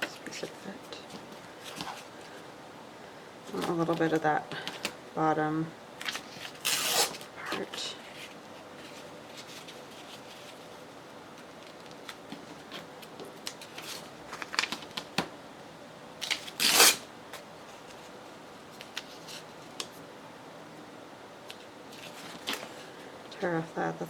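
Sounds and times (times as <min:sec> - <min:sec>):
paper rustling and tapping: 0:11.4 - 0:15.3.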